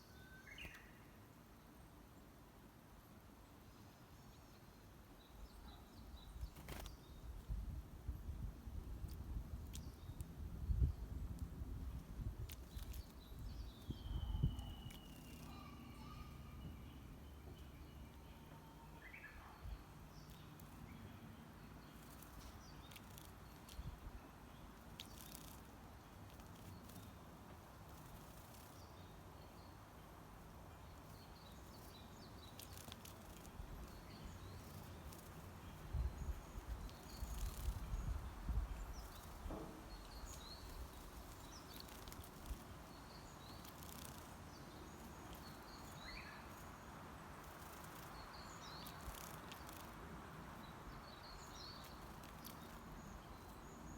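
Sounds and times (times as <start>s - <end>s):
small birds chirping: 0.0s - 2.3s, 3.0s - 53.9s
outdoor background hiss: 0.0s - 53.9s.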